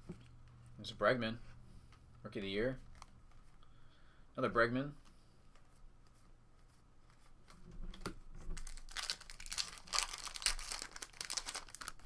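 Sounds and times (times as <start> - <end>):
foil wrapper tearing and crinkling: 8.6 - 12.0.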